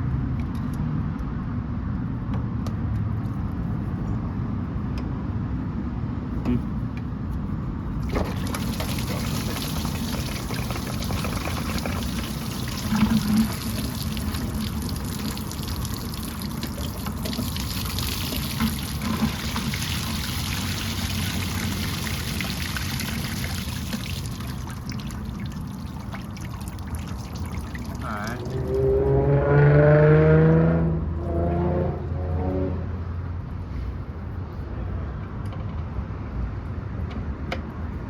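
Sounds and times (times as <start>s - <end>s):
liquid pouring onto ground: 8.0s - 28.8s
liquid splashes: 8.0s - 28.8s.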